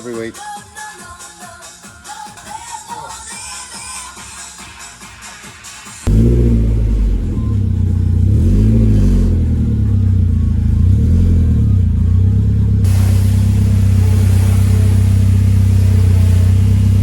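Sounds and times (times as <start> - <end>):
car engine starting and revving: 6.0 - 17.0.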